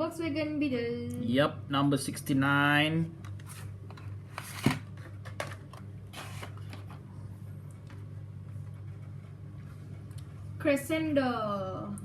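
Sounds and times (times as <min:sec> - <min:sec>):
steady low hum: 0:00.0 - 0:12.0
packaging rustle: 0:03.4 - 0:07.0
plastic packaging knocks and clicks: 0:04.6 - 0:05.9.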